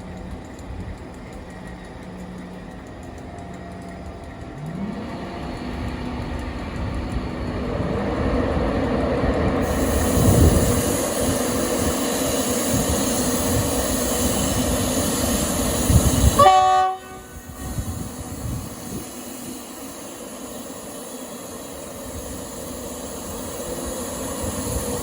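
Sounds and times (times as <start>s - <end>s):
train passing with rail noise: 0.0s - 25.0s
train horn note: 16.2s - 17.9s.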